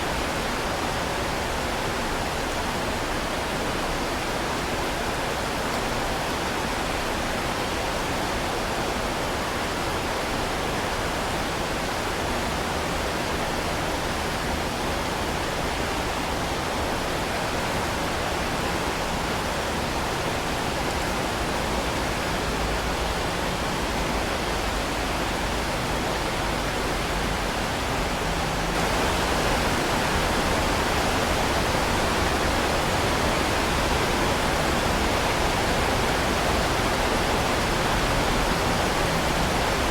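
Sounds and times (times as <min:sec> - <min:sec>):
heavy rain falling: 0:17.8 - 0:39.9.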